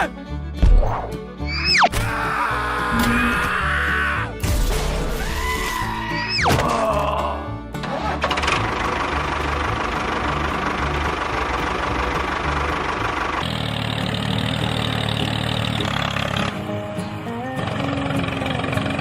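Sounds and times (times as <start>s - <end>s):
steady engine sound: 7.8s - 19.0s
engine idling with knocking: 7.9s - 16.7s, 17.5s - 19.0s.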